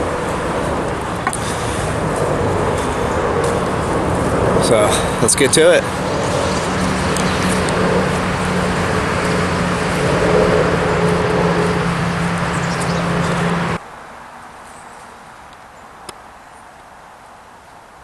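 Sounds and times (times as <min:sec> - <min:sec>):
vehicle engine running: 0:00.0 - 0:13.8
road noise rush: 0:00.0 - 0:18.0.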